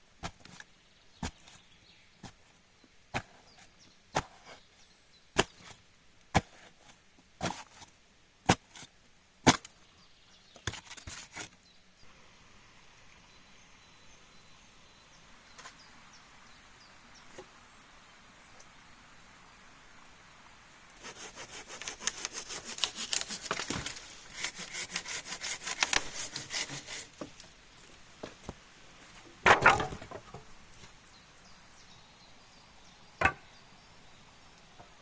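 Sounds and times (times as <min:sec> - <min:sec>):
quiet steady noise: 0:00.0 - 0:35.0
axe chopping wood: 0:04.1 - 0:04.5, 0:05.4 - 0:06.7, 0:08.5 - 0:09.7, 0:29.4 - 0:30.2.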